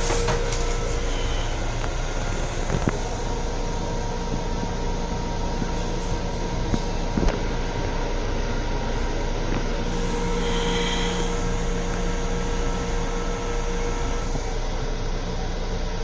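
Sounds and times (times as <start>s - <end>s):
hum and whine: 0.0s - 16.0s
train running rumble: 0.0s - 16.0s.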